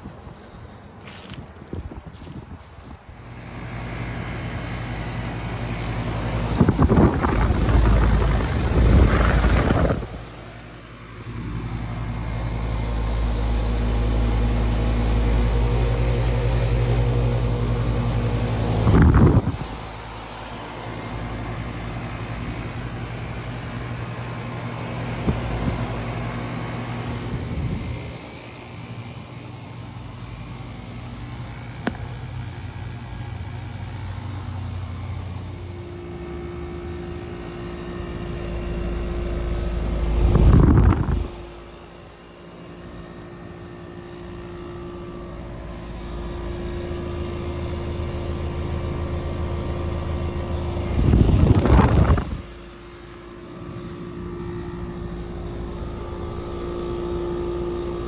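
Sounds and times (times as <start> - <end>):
heat pump compressor hum: 0.0 - 58.0
condenser fan whoosh: 1.6 - 58.0
steady higher hum: 2.8 - 58.0
loud swell of noise: 6.0 - 21.8.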